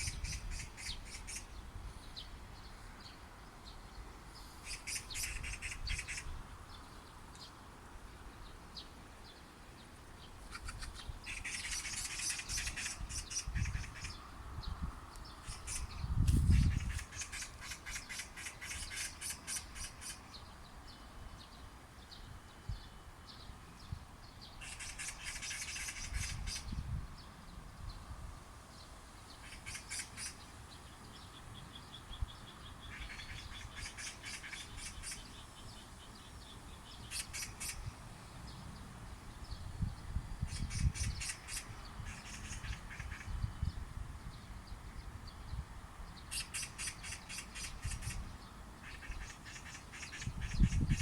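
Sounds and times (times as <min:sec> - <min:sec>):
magpies chattering: 0:00.0 - 0:01.6, 0:04.6 - 0:06.3, 0:10.4 - 0:14.2, 0:15.4 - 0:20.3, 0:24.6 - 0:26.7, 0:29.4 - 0:30.5, 0:32.8 - 0:38.0, 0:40.4 - 0:43.4, 0:46.2 - 0:48.2, 0:48.8 - 0:51.0.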